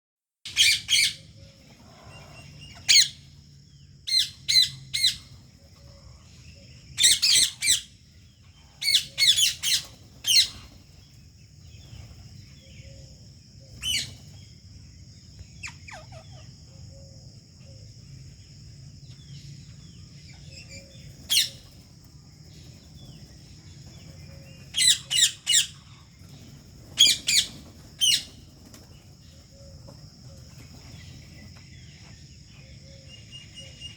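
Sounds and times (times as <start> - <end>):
parakeets squawking: 0.5 - 3.2, 7.0 - 7.9, 8.8 - 10.7, 24.7 - 25.9, 27.0 - 28.3.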